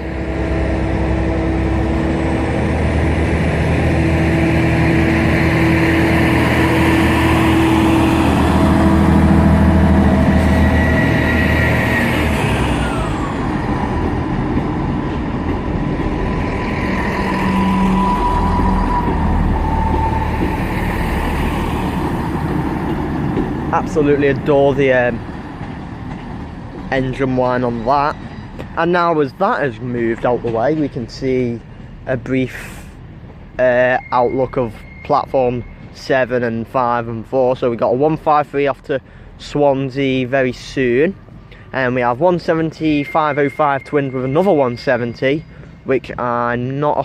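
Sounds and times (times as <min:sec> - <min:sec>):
high whine: 0:00.0 - 0:25.2
train diesel engines: 0:00.0 - 0:47.0.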